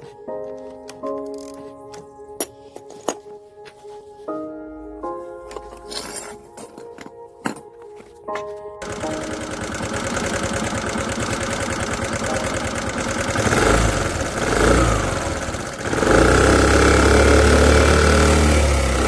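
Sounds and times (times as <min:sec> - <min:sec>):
scooter engine revving: 0:08.8 - 0:19.0.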